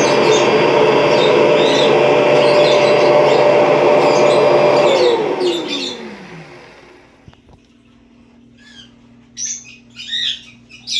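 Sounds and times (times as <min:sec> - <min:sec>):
vacuum cleaner motor winding down: 0:00.0 - 0:07.4
bird chirps: 0:08.5 - 0:10.9.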